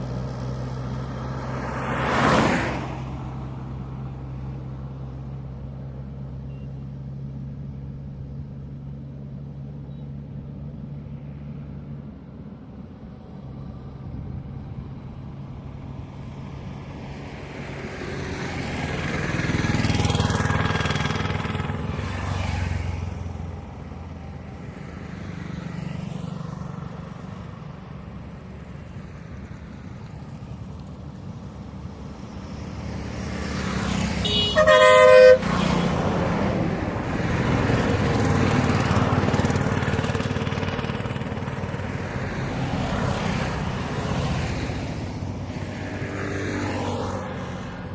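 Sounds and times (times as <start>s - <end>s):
vehicles passing: 0.0s - 47.9s
car horn: 34.2s - 36.0s.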